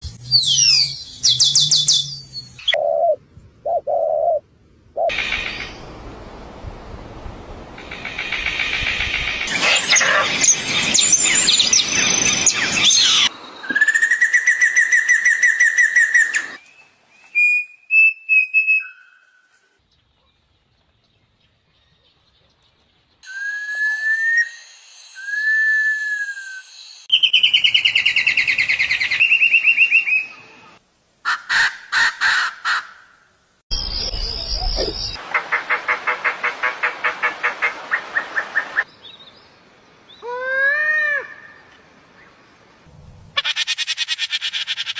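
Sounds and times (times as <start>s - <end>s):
birds chirping and singing: 8.1s - 13.3s
whistled bird notes: 23.2s - 30.6s.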